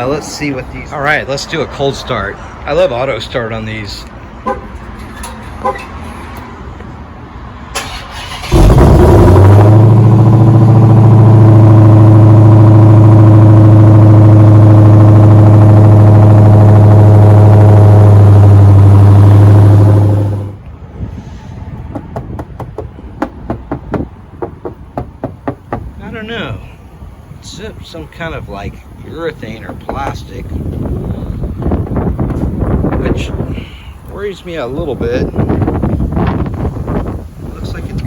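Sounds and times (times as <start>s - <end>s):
car engine starting and idling: 7.7s - 20.9s, 21.7s - 38.0s.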